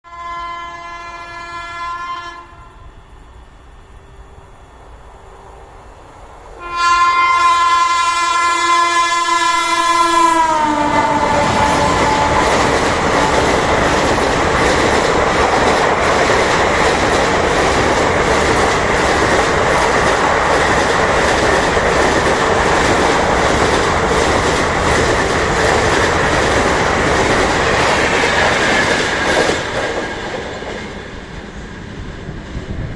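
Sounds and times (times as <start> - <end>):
locomotive horn honking: 0.0 - 2.8, 6.6 - 12.7
train coaches clickety-clack: 6.3 - 32.9.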